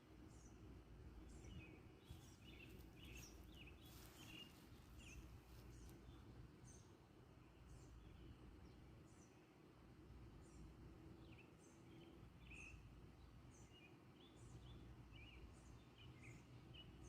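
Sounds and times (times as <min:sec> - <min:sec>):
low outdoor rumble: 0:00.0 - 0:09.1
small birds chirping: 0:00.2 - 0:09.6, 0:10.3 - 0:17.0.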